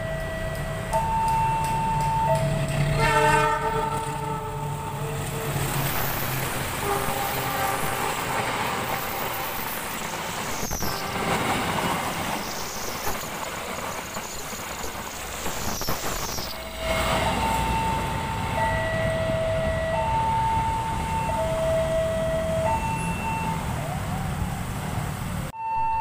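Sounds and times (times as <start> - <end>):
level-crossing alarm two tones: 0.0 - 2.9, 15.5 - 23.7, 25.6 - 26.0
train rolling past: 0.0 - 25.5.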